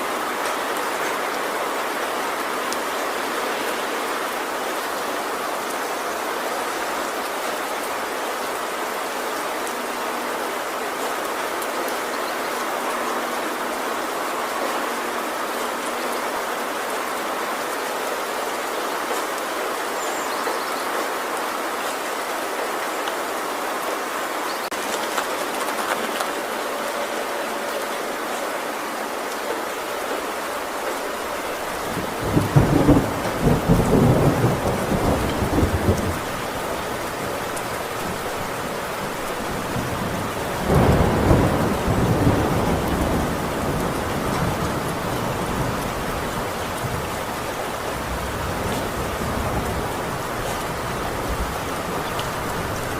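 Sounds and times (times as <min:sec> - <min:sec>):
heavy rain on a tin roof: 0:00.0 - 0:52.9
thunder rumbling: 0:31.2 - 0:52.9.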